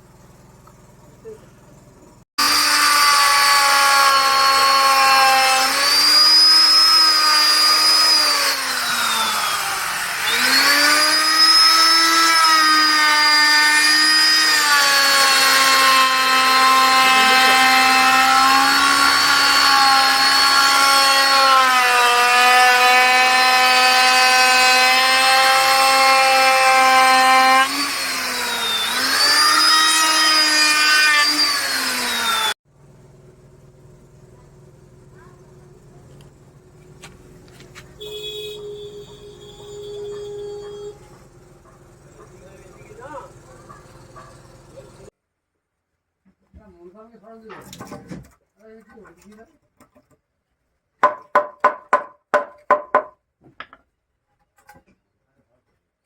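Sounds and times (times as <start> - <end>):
power tool cutting wood: 2.4 - 32.6.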